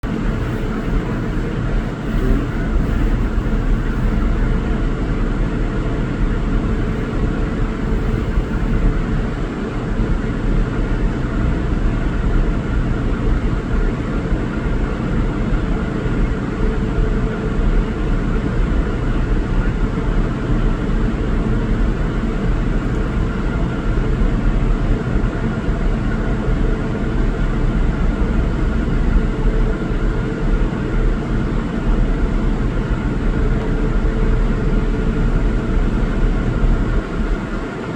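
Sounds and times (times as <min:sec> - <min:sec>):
moving vehicle rumble and hiss: 0:00.0 - 0:11.2, 0:26.9 - 0:32.7
faint steady hum: 0:00.0 - 0:37.9.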